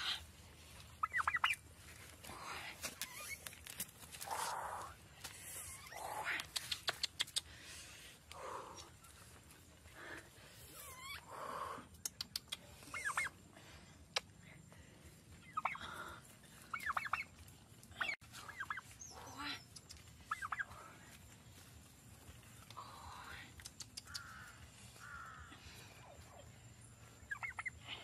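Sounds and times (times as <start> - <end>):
birds chirping: 14.5 - 28.0.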